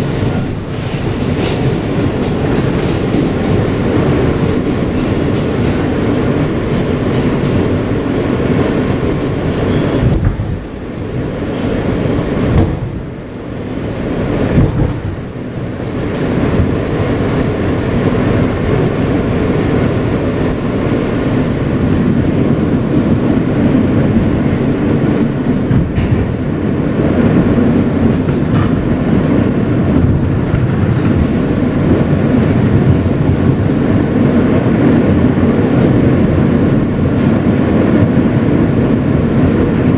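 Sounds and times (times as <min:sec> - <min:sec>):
subway car rumbling on rails: 0:00.0 - 0:39.9.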